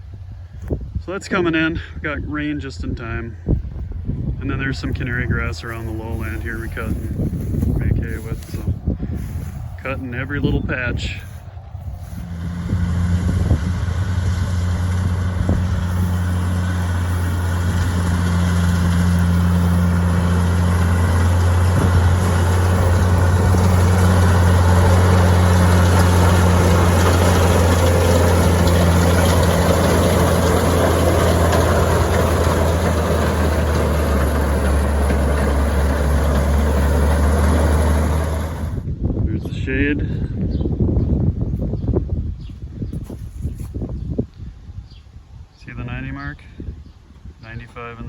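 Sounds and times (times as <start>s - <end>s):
tractor engine running: 3.7s - 39.0s.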